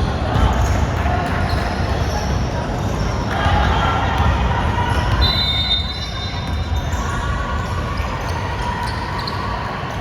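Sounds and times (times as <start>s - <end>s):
sneaker squeak: 1.4s - 3.2s, 4.9s - 10.0s.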